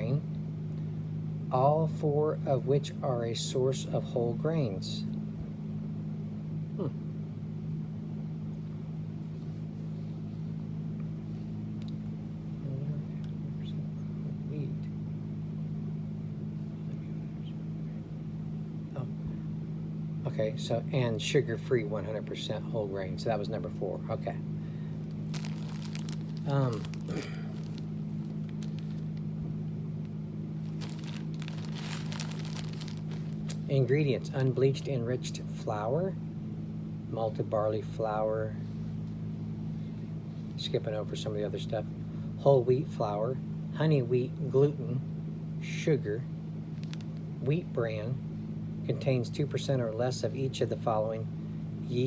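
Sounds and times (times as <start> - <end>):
low steady hum: 0.0 - 52.0
motor humming: 24.6 - 29.5, 30.6 - 33.7
plastic bag crinkling: 25.0 - 29.4, 30.6 - 33.7, 46.8 - 47.2.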